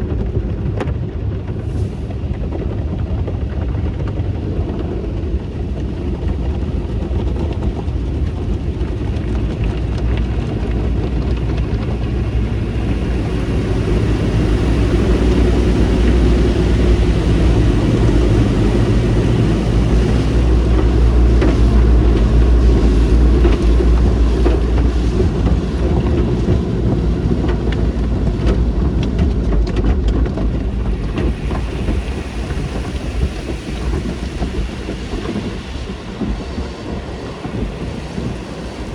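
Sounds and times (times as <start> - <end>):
car wash equipment rushing: 0.1 - 38.9.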